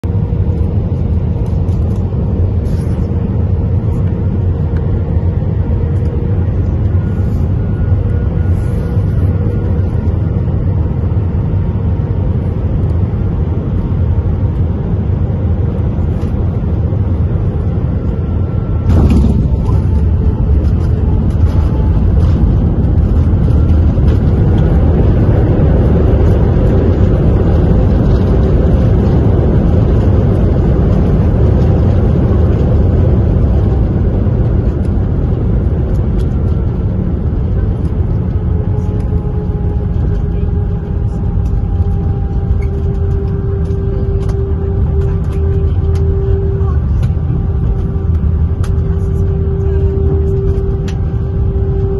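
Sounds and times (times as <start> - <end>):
jet engine rumble in cabin: 0.0 - 51.9
landing roll rumble: 18.8 - 24.3.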